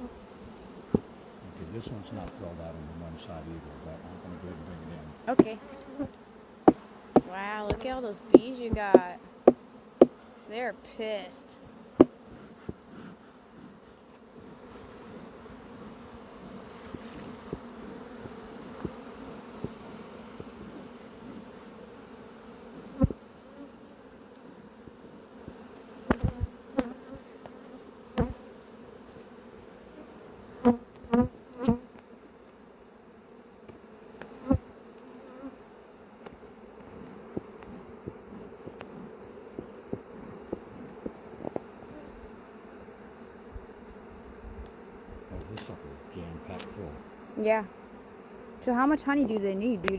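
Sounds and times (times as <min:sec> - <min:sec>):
bees buzzing: 0:00.0 - 0:49.9.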